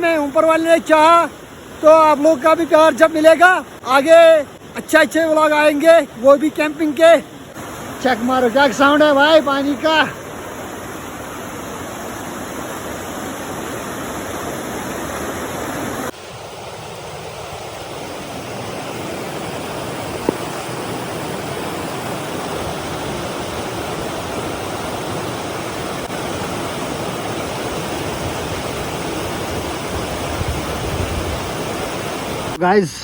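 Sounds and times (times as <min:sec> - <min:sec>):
stream water rushing: 0:00.0 - 0:33.0.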